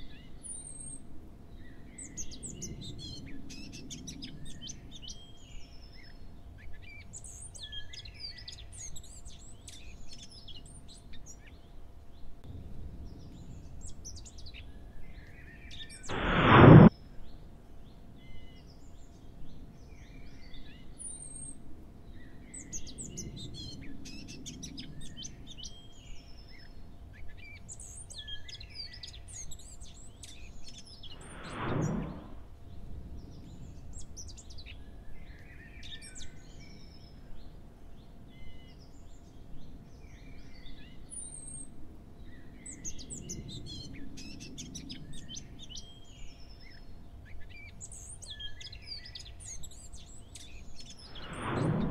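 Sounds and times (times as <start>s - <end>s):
short loud whoosh: 16.1s - 16.9s, 31.0s - 32.6s, 51.0s - 51.9s.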